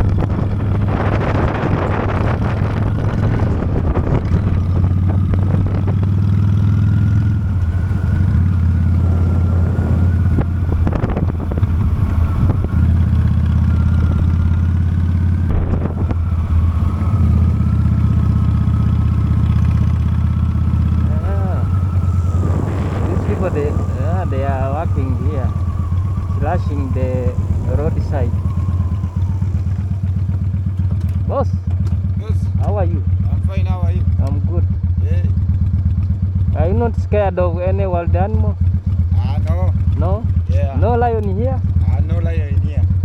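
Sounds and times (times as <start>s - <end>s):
wind rushing over microphone: 0.0s - 31.4s
motorcycle engine cruising: 0.0s - 43.0s.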